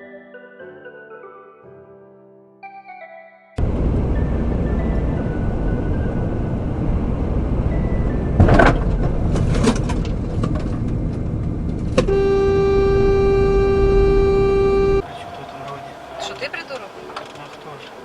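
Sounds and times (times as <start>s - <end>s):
car road and engine rumble: 3.6s - 18.0s
car horn blast: 12.0s - 15.3s.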